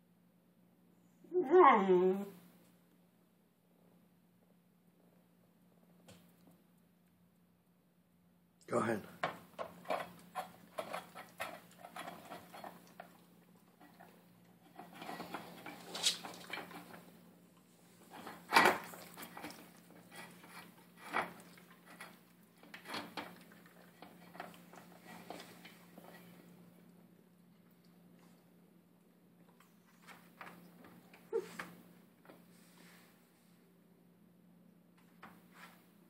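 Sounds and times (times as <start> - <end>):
food bowl clanking: 9.2 - 17.1
puppy chewing food: 9.4 - 17.2, 17.9 - 28.6.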